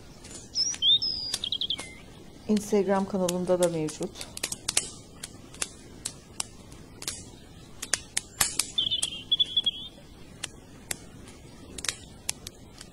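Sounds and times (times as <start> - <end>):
high warbling chirp: 0.0 - 2.5, 7.2 - 10.4
sharp clicks and pops: 0.2 - 12.9.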